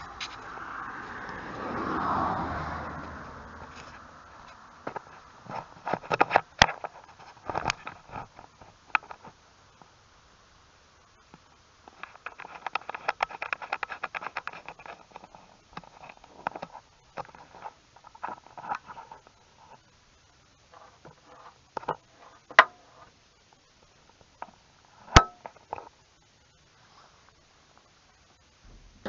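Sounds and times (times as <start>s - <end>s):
sharp metal clanks: 25.2s - 25.5s.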